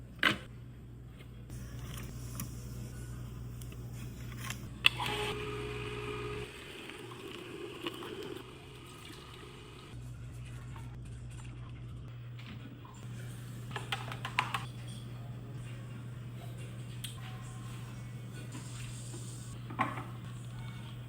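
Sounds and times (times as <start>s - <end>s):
juicer motor hum: 1.5s - 10.0s, 12.9s - 21.0s.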